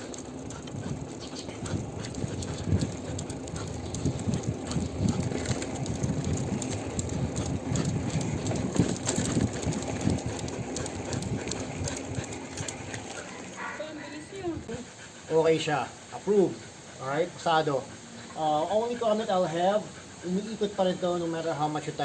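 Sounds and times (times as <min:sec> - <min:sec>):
small rattles and knocks: 0:00.0 - 0:13.8
tyres and wind rumble: 0:00.0 - 0:17.6.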